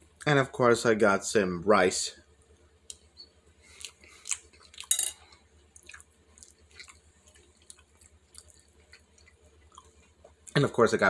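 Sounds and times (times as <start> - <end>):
man chewing rice: 2.9 - 10.6.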